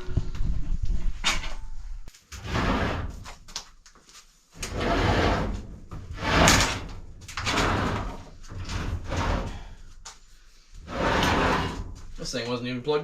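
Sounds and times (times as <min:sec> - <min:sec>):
dolly wheels scraping and rolling: 0:02.3 - 0:03.4, 0:04.6 - 0:09.8, 0:10.8 - 0:12.3.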